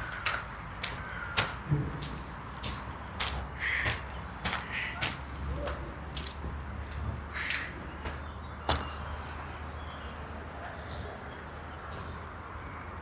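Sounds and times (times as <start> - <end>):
crow cawing: 0.0 - 5.9, 6.8 - 8.9
footstep crunches: 0.0 - 10.0
low city hum: 0.0 - 13.0.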